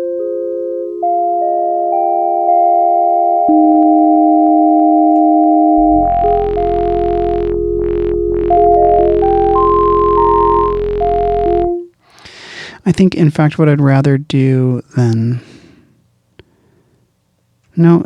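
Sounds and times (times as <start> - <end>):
synthesizer playing chords: 3.6 - 11.9
deep sub-bass: 5.8 - 11.9.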